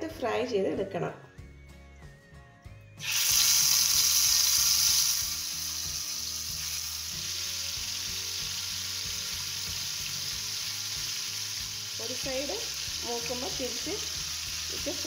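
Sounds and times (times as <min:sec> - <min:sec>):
chicken sizzling in hot oil: 0:03.0 - 0:15.0.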